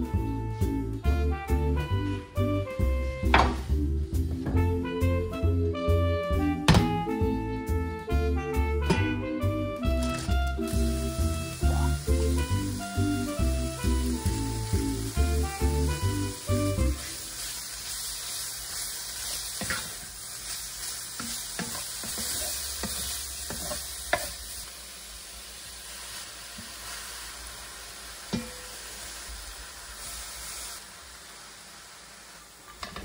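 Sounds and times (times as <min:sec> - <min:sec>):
pork sizzling in a pan: 0:09.8 - 0:33.0.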